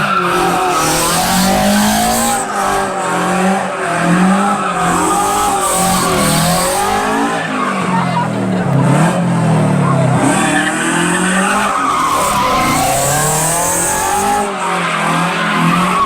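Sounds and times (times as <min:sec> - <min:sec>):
tyres squealing: 0:00.0 - 0:09.1, 0:10.1 - 0:16.0
car engine revving hard: 0:00.0 - 0:16.0.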